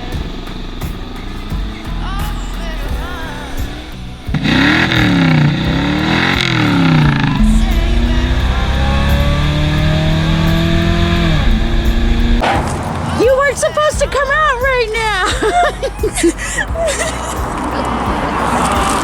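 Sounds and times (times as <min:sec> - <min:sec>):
car engine revving: 0:00.0 - 0:15.1.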